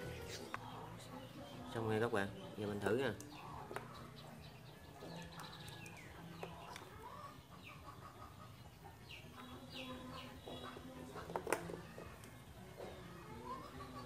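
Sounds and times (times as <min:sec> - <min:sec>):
faint bird chirping: 0:00.0 - 0:14.0.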